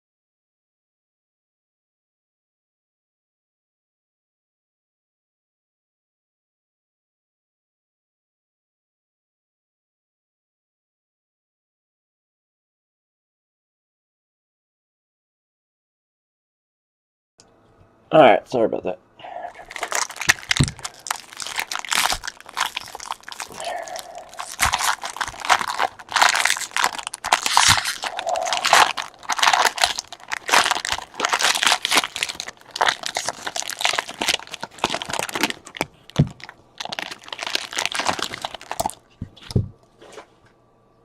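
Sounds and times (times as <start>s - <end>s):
card pack wrappers crinkling: 19.6s - 39.1s.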